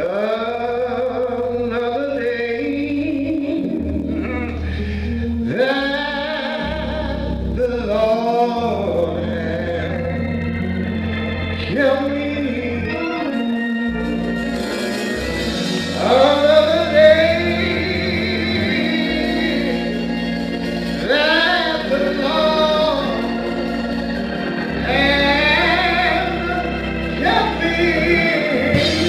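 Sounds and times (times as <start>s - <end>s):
gospel singing: 0.0s - 29.0s
organ chords: 0.0s - 29.0s.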